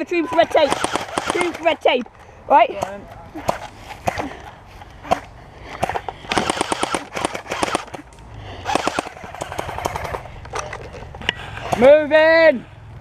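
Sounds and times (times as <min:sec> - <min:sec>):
airsoft guns firing full-auto bursts: 0:00.0 - 0:01.9, 0:05.0 - 0:10.3.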